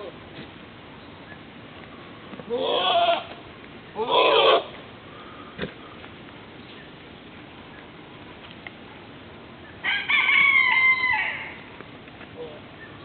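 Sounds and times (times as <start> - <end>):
farm animal calling: 2.4 - 5.4.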